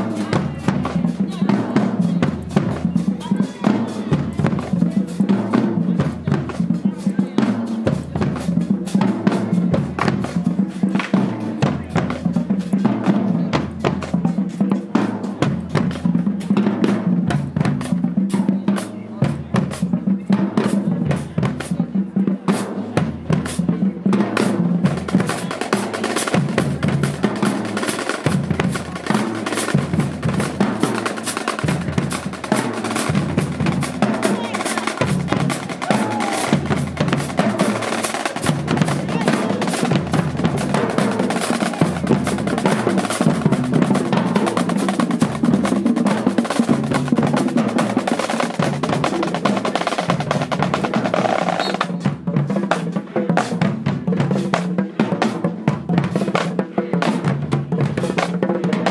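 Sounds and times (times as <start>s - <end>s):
bass drums on steady beat: 23.0s - 51.4s
snare drum strokes: 24.4s - 52.1s.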